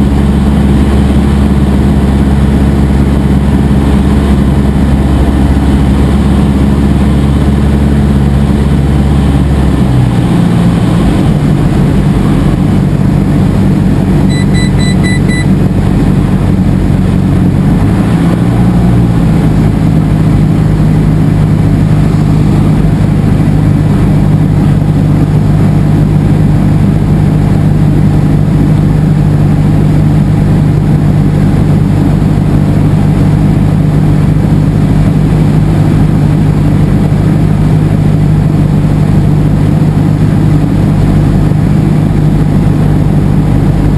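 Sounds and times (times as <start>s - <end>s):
airplane engine droning: 0.0s - 43.9s
high-pitched pulsing beep: 14.3s - 15.6s.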